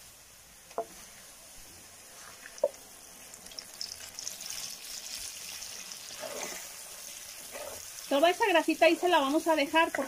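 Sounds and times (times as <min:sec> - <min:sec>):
meat sizzling and crackling in fat: 0:01.0 - 0:10.0
sauce pouring into pot: 0:02.4 - 0:08.2.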